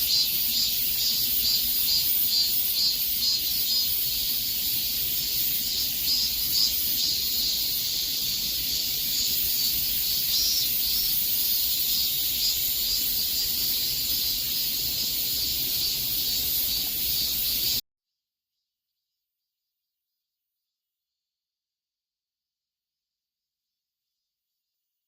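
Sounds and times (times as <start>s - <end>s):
cicadas buzzing: 0.0s - 17.8s.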